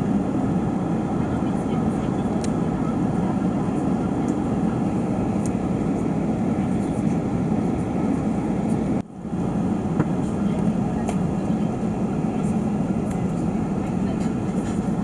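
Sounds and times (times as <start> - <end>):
airplane cabin engine rush: 0.0 - 15.0.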